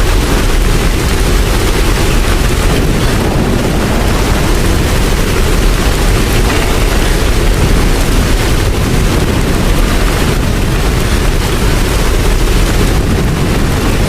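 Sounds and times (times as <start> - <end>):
deep low rumble: 0.0 - 14.0
loud rain: 0.0 - 14.0.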